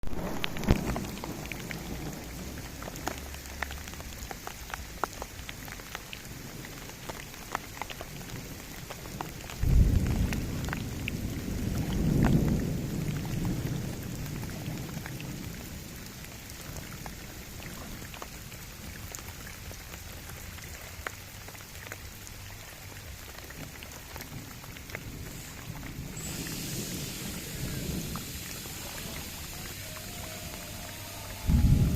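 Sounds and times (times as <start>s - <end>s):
thunder rumbling: 0.0s - 4.1s, 9.6s - 16.2s, 24.4s - 31.9s
rain pattering on water: 0.0s - 31.9s.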